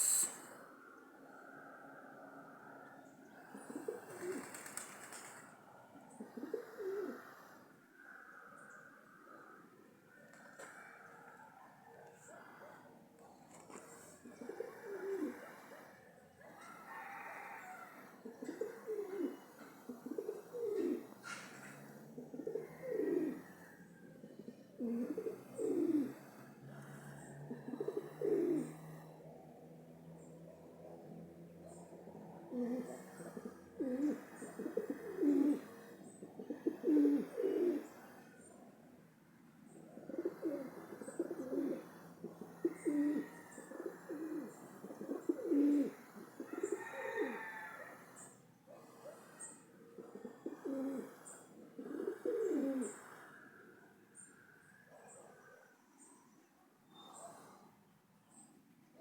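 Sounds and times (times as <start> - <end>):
short high bird chirp: 0.0 - 0.4
birds cooing: 0.0 - 0.6, 3.0 - 29.2, 31.0 - 38.6, 39.7 - 53.6.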